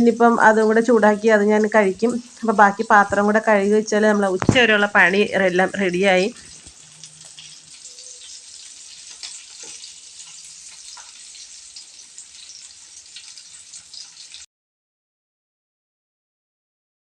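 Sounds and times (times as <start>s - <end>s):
tap water running into sink: 4.4s - 14.4s.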